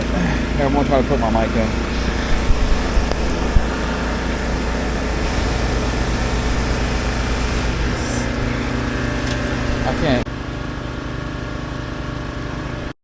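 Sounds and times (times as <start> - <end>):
gas engine running: 0.0 - 12.9
microphone handling knocks: 1.8 - 5.2
water spraying hiss: 1.8 - 9.9.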